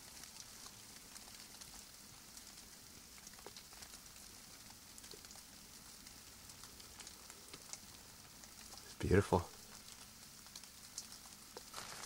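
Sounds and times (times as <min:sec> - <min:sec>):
faint raindrops pattering: 0:00.0 - 0:12.0.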